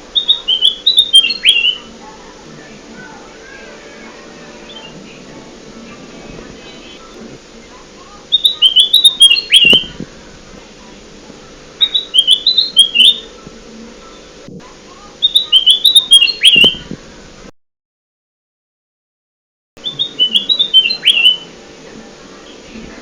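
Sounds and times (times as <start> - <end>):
bulbul whistled song: 0.1 - 1.9, 8.3 - 10.1, 11.8 - 13.4, 15.2 - 17.0, 19.8 - 21.5.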